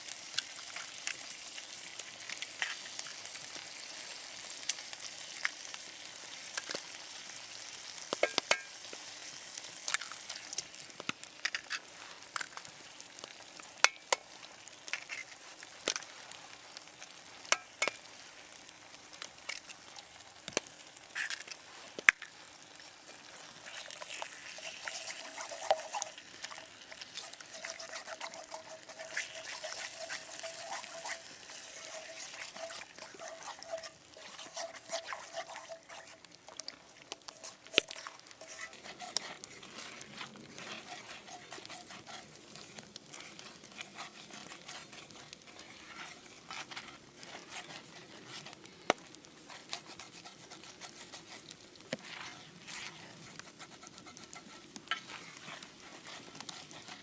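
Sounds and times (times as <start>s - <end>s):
sizzling hiss with crackles: 0.0s - 57.0s.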